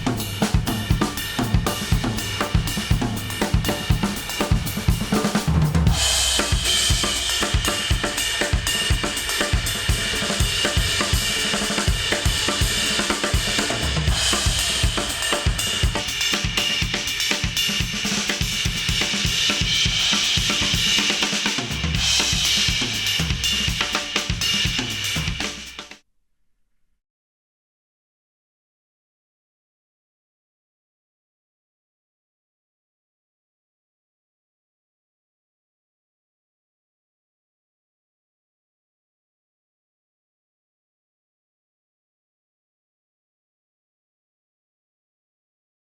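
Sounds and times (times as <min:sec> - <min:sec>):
drum-heavy music: 0:00.0 - 0:26.0.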